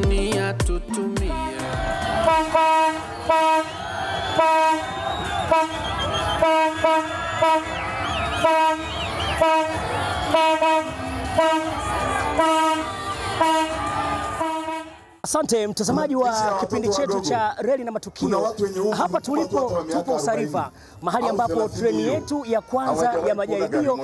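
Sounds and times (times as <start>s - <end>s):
passing train noise: 2.0s - 15.2s
train horn blasts: 2.2s - 3.8s, 4.4s - 7.8s, 8.4s - 15.1s.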